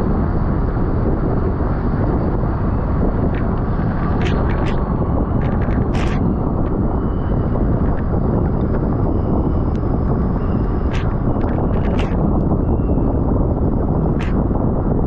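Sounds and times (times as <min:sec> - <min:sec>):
wind rush on microphone: 0:00.0 - 0:15.0.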